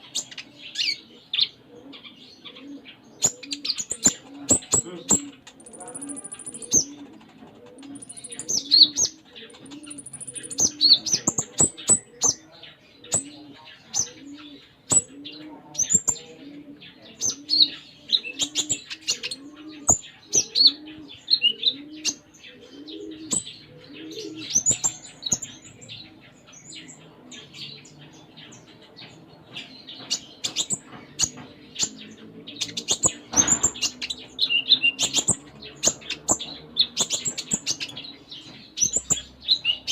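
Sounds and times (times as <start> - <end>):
dove cooing: 0.0 - 39.9
sunbird chirps and trills: 3.3 - 7.0, 7.8 - 15.2, 22.2 - 39.9
sharp bird clicks: 3.9 - 6.9, 7.7 - 8.6, 9.6 - 12.1.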